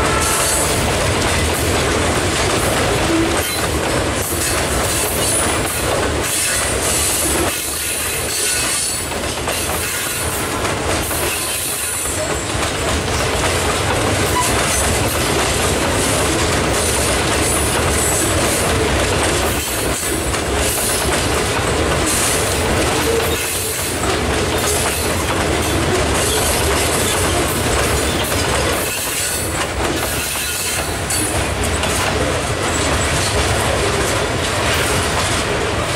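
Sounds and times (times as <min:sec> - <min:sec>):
wheels clicking over rail joints: 0:00.2 - 0:35.9
steel wheel squeal: 0:06.3 - 0:09.0, 0:14.3 - 0:14.9, 0:24.9 - 0:31.4.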